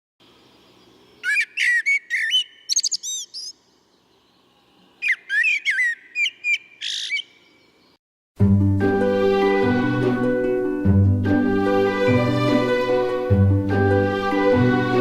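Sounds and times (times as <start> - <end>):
songbird whistling: 1.2 - 3.6, 5.0 - 7.6.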